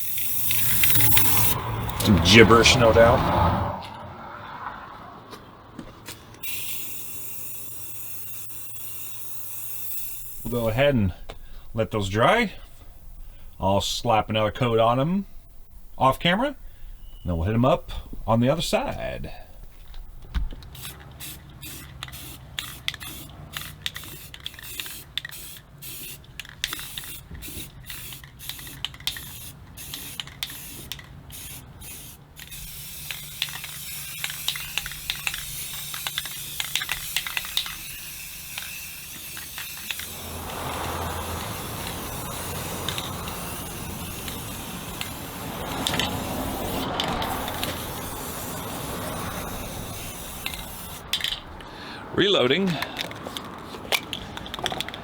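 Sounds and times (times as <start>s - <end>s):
aerosol can spraying: 0.0s - 2.4s, 6.4s - 11.4s, 20.7s - 51.3s.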